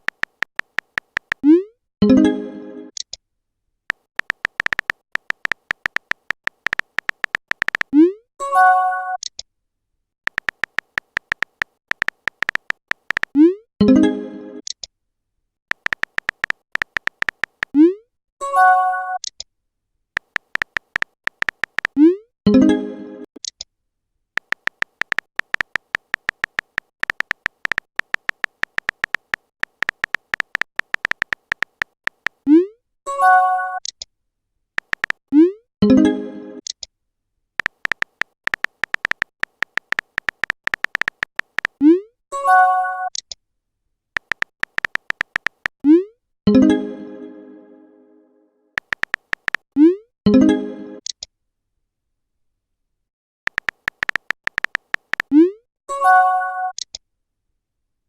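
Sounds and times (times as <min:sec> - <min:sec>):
phone keyboard typing clicks: 0:00.0 - 0:01.6, 0:03.9 - 0:08.0, 0:10.3 - 0:13.5, 0:15.7 - 0:17.8, 0:20.2 - 0:22.2, 0:24.4 - 0:32.5, 0:34.8 - 0:35.2, 0:37.6 - 0:41.8, 0:44.2 - 0:45.8, 0:48.8 - 0:49.7, 0:53.5 - 0:55.4.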